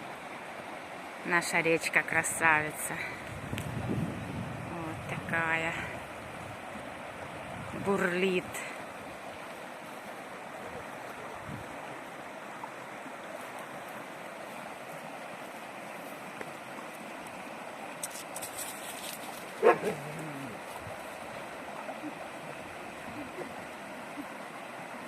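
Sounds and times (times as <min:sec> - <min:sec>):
river water rushing: 0:00.0 - 0:25.0
dog barking: 0:19.6 - 0:20.2.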